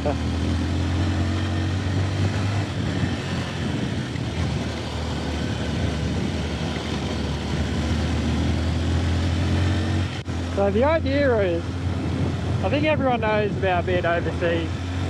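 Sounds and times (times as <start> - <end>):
motorcycle engine humming: 0.0 - 15.0
road noise: 0.0 - 15.0
rushing wind: 0.0 - 15.0.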